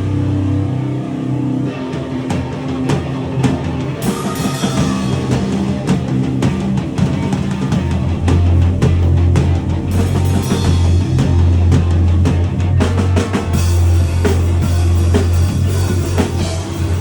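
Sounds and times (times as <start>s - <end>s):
distorted guitar and bass: 0.0s - 17.0s
drum kit hits: 4.0s - 17.0s.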